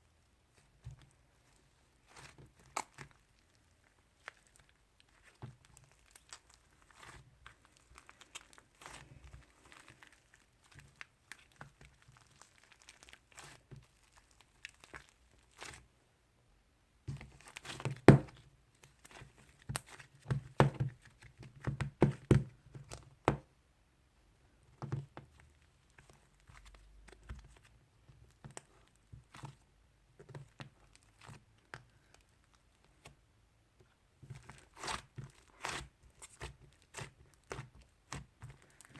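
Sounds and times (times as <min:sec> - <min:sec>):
slime squished by hand: 0:01.4 - 0:15.9, 0:17.1 - 0:23.5.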